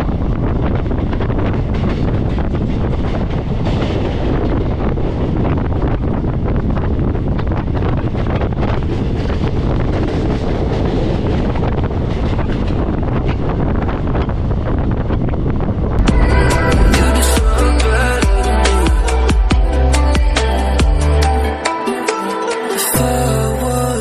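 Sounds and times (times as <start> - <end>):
wind buffeting microphone: 0.0 - 20.5
train coach rumble: 0.0 - 21.5.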